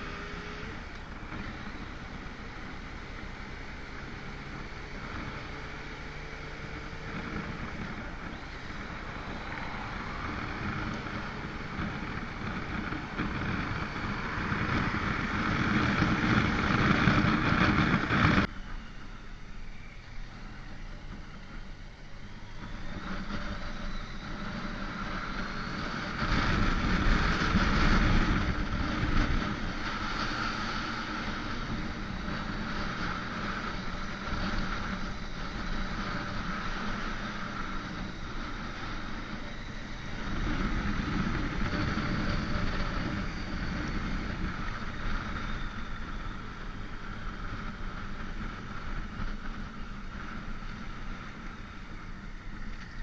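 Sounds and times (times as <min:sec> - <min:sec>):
motorcycle engine: 0:00.0 - 0:53.0
wind noise: 0:00.0 - 0:53.0.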